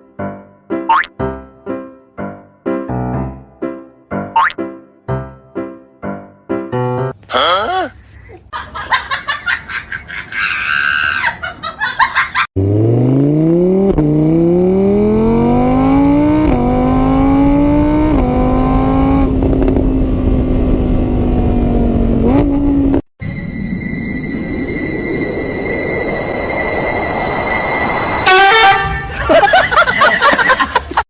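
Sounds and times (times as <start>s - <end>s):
car engine accelerating through gears: 12.6s - 23.0s
steady high tones: 23.2s - 28.4s.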